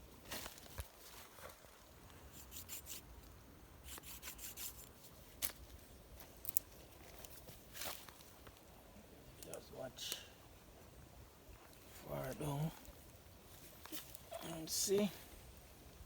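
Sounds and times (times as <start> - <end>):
wooden sticks scraping and clicking: 2.3 - 3.1, 3.8 - 5.6.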